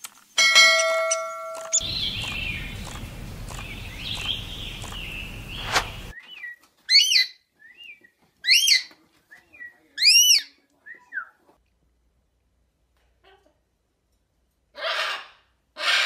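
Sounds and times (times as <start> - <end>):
bird calls rising and falling: 1.6 - 8.0
soft bird chirps: 1.6 - 8.8
background hiss: 1.7 - 6.2.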